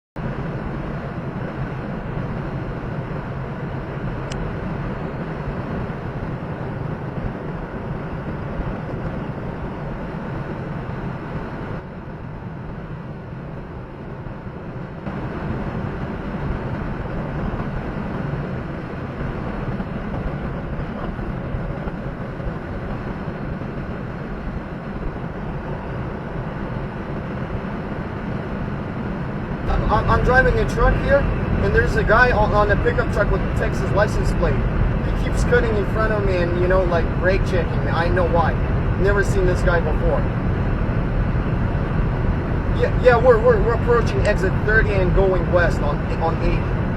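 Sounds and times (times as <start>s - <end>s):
truck engine and road noise: 0.2s - 46.9s.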